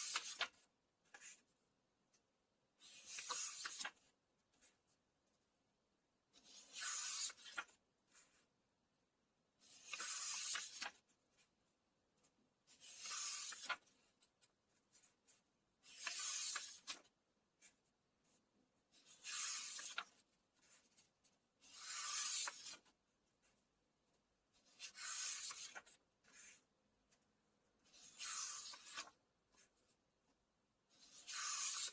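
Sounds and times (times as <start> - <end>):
book pages turning: 0.0 - 1.5, 2.8 - 5.0, 6.3 - 8.5, 9.6 - 11.5, 12.2 - 23.6, 24.6 - 30.0, 30.9 - 31.9.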